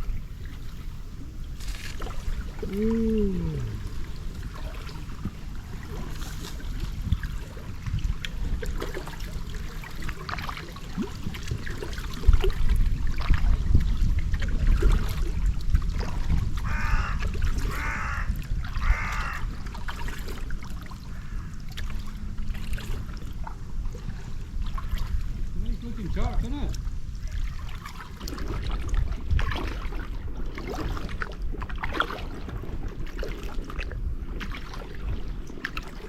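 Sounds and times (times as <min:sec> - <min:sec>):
low rumble: 0:00.0 - 0:05.9
trickling water: 0:00.0 - 0:36.0
crow cawing: 0:16.6 - 0:19.5, 0:21.1 - 0:21.5.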